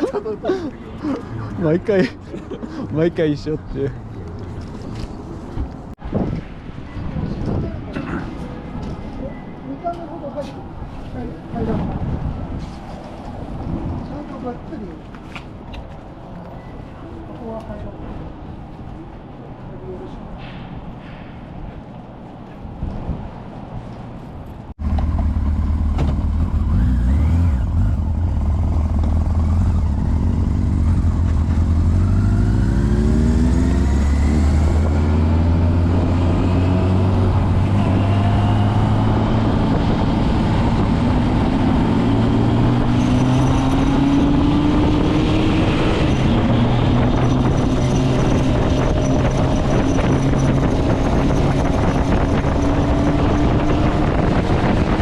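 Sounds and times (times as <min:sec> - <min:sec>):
motorcycle engine accelerating: 0:24.8 - 0:55.0
wind rushing: 0:31.8 - 0:55.0.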